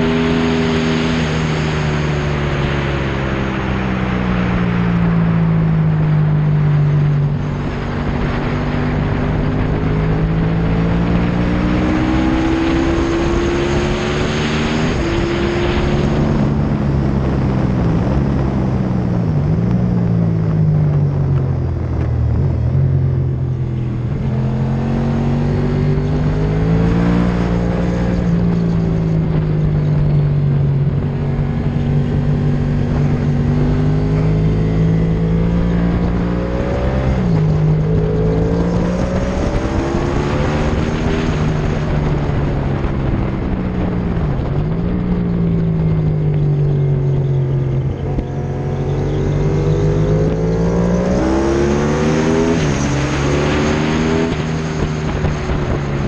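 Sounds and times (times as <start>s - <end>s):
motorcycle engine at speed: 0.0s - 56.0s
wind rush on microphone: 0.0s - 56.0s.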